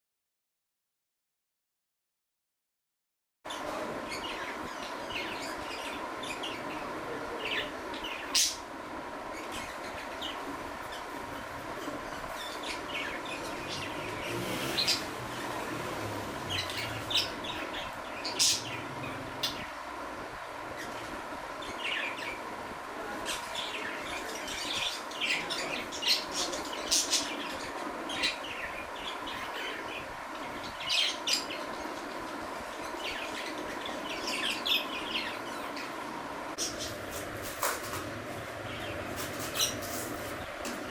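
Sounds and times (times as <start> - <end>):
steady background hum: 3.5 - 40.9
budgerigars chirping: 9.4 - 19.8, 23.3 - 36.0, 38.6 - 40.4.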